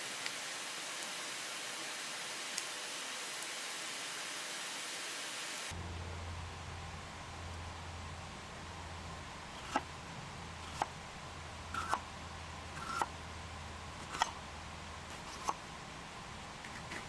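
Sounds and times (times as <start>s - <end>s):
low hum: 5.7s - 17.0s.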